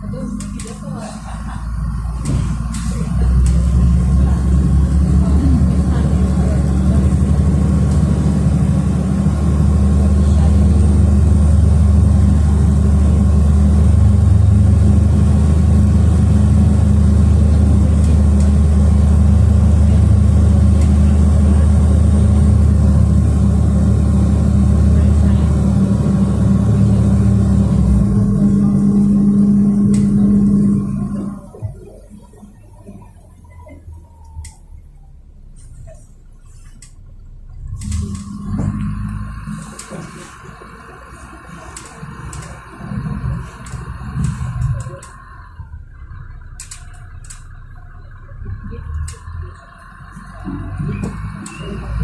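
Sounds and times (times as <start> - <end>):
bus engine drone from inside: 0.0 - 52.0.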